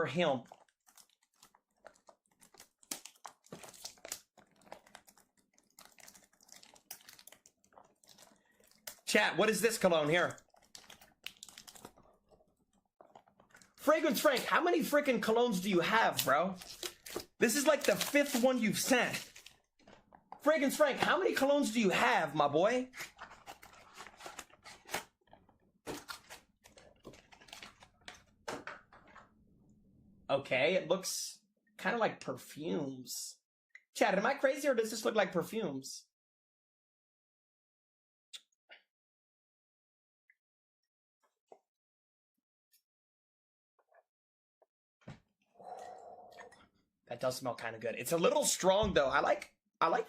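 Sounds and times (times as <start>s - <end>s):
packaging crinkling and rustling: 0.5s - 9.1s, 10.2s - 13.8s, 16.1s - 20.3s, 22.9s - 28.4s.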